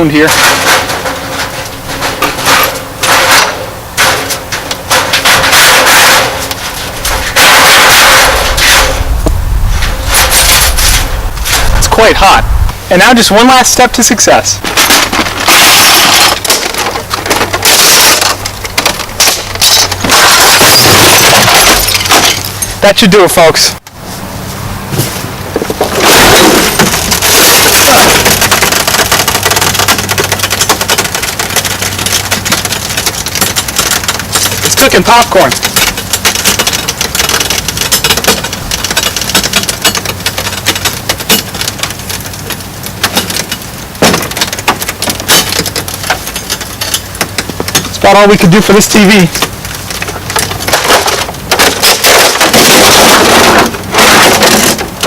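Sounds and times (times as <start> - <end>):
popcorn popping: 0.0 - 12.4, 13.0 - 22.9, 25.6 - 55.0
loud crushing and breaking: 0.0 - 23.7, 25.0 - 55.0.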